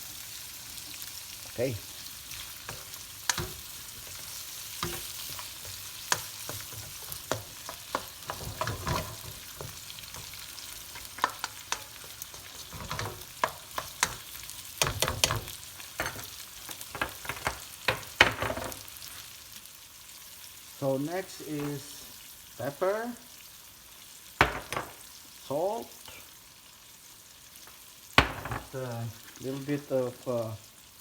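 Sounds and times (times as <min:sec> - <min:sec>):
food sizzling in oil: 0:00.0 - 0:31.0
utensil scraping a pan: 0:02.2 - 0:19.2.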